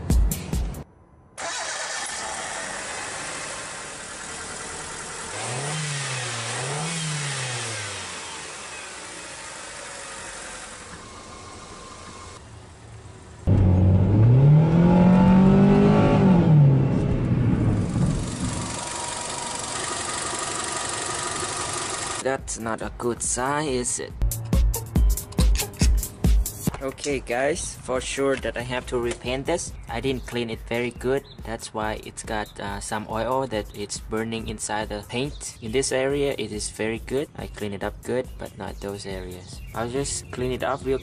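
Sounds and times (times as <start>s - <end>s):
car engine idling and revving: 1.4s - 22.2s.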